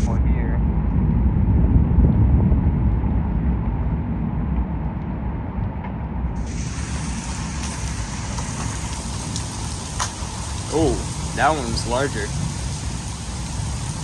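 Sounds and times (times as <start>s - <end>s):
wind rumbling on microphone: 0.0s - 14.0s
rain: 6.3s - 14.0s
hailstones ticking: 6.4s - 14.0s.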